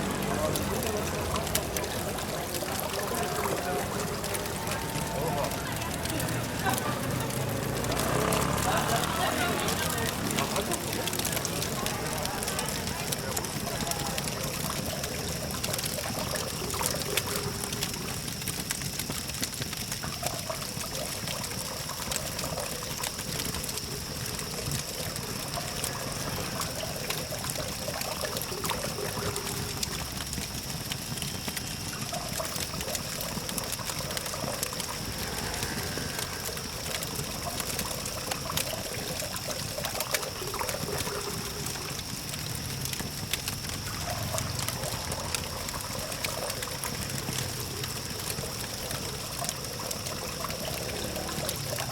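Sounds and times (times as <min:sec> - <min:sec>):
campfire crackling and popping: 0:00.0 - 0:51.9
distant traffic hum: 0:00.0 - 0:51.9.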